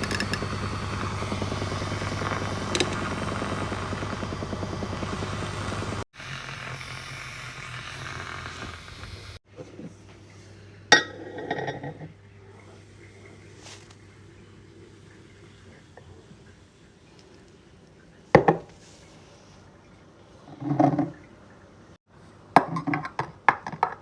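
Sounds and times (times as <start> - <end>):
coffee machine pump buzzing: 0.0 - 9.4.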